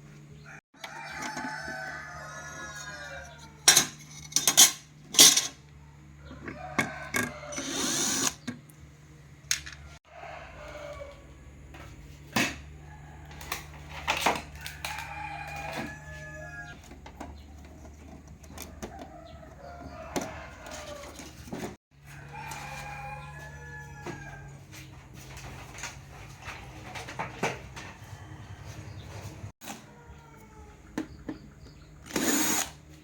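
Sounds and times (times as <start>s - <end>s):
rooster crowing: 0.4s - 3.6s, 5.8s - 8.2s, 9.8s - 11.9s, 12.7s - 16.8s, 18.6s - 25.9s, 27.6s - 30.8s.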